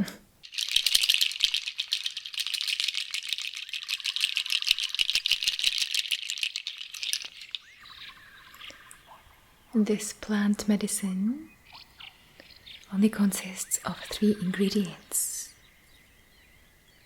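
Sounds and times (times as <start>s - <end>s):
hand rattle shaken: 0.4s - 7.5s.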